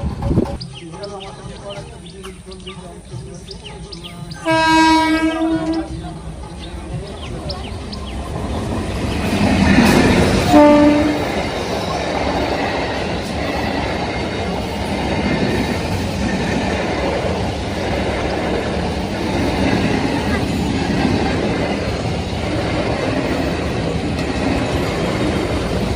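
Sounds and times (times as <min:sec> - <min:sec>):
train rumbling: 0:00.0 - 0:25.9
train horn blast: 0:04.4 - 0:06.0, 0:10.4 - 0:11.5.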